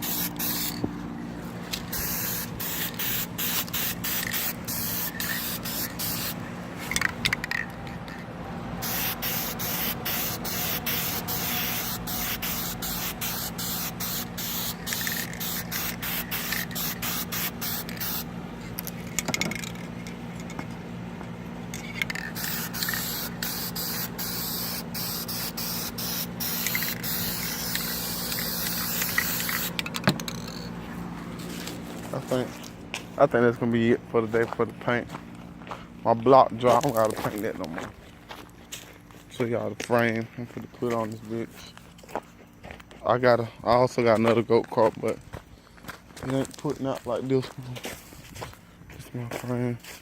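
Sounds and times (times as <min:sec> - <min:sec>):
spray paint hissing: 0:00.0 - 0:00.8, 0:01.7 - 0:07.7, 0:08.8 - 0:19.8, 0:21.8 - 0:30.7
steady low hum: 0:00.0 - 0:50.0.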